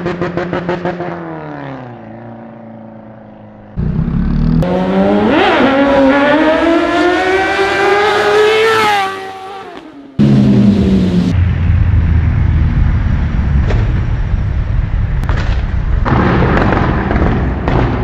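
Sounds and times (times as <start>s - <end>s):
motorcycle engine accelerating: 0.0s - 15.2s.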